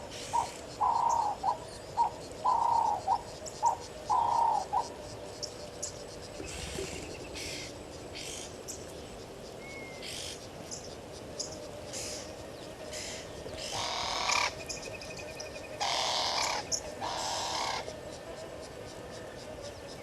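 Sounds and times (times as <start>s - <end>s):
raspy animal calls: 0.1s - 5.0s, 12.9s - 14.6s, 15.8s - 18.9s.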